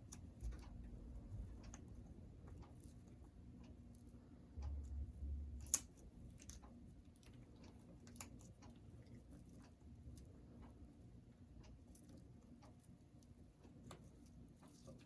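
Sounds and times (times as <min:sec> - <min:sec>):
low rumble: 0:04.5 - 0:06.7.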